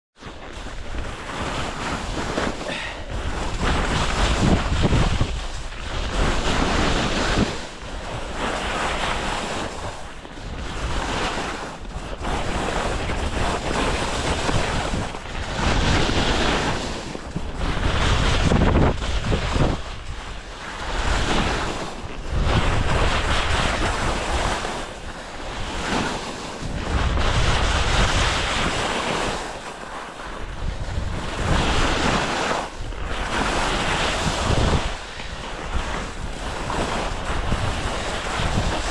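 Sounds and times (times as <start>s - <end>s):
wind buffeting microphone: 0.4s - 29.6s, 30.2s - 38.9s.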